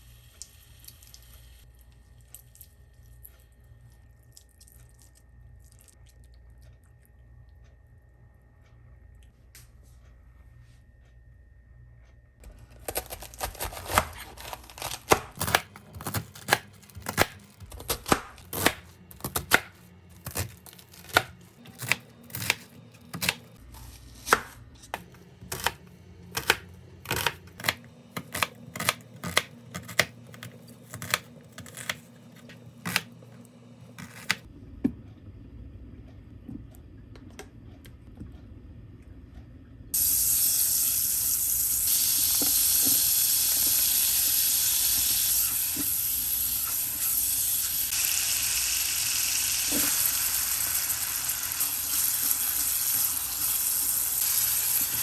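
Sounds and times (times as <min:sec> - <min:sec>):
knife chopping on cutting board: 0:12.8 - 0:33.1, 0:34.0 - 0:34.5
food sizzling in hot pan: 0:40.0 - 0:55.0.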